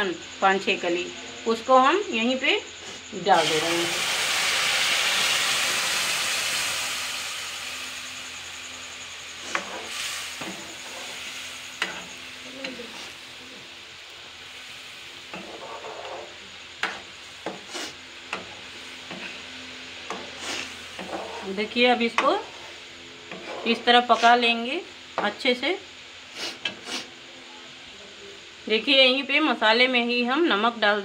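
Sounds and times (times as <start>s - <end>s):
paste sizzling in hot oil: 3.2s - 24.4s.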